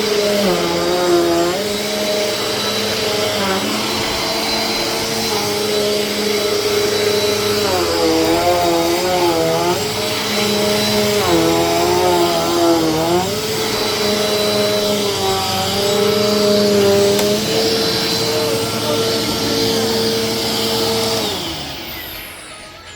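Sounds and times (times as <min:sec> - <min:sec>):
vacuum cleaner running: 0:00.0 - 0:22.9.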